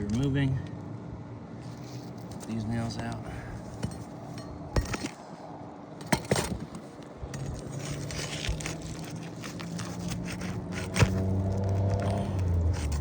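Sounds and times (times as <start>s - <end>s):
tool clicking and scraping shingle: 3.6s - 5.3s, 6.0s - 13.0s.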